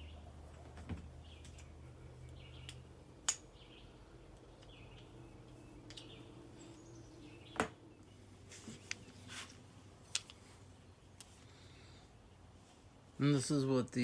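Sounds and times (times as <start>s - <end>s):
sharp knocks of handled parts: 2.3s - 3.5s.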